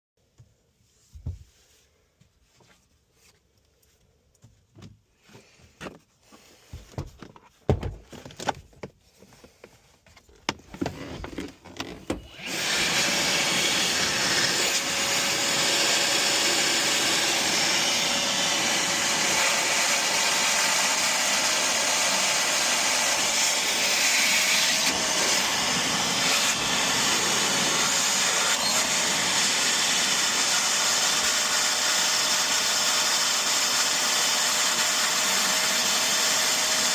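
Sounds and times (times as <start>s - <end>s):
vacuum motor running: 11.3s - 36.9s.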